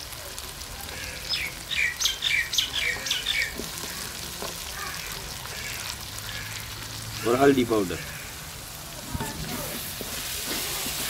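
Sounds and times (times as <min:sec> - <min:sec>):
masala sizzling in a pan: 0:00.0 - 0:11.0
bird chirping: 0:01.2 - 0:03.6.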